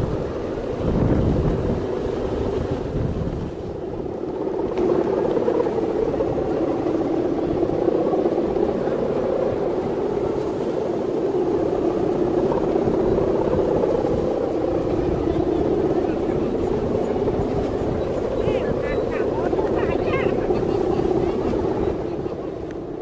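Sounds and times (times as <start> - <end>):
kite hummer droning: 0.0 - 23.0
wind buffeting microphone: 0.0 - 23.0.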